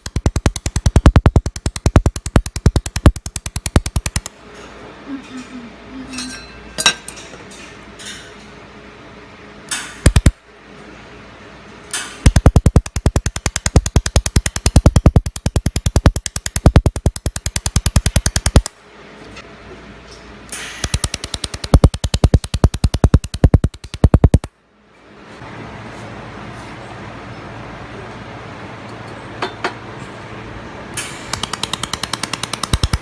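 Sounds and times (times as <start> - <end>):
laser welder sharp pops: 0.0 - 4.3, 9.7 - 10.4, 12.0 - 18.8, 20.6 - 24.5, 31.0 - 33.0.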